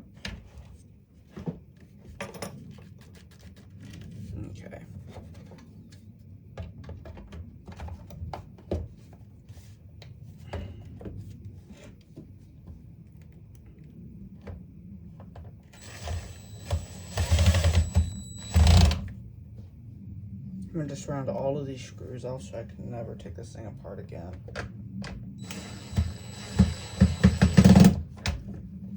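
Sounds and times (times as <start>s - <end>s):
parts clicking and knocking: 15.2s - 19.1s, 24.4s - 28.5s
power drill whining: 15.8s - 19.1s, 25.4s - 28.1s.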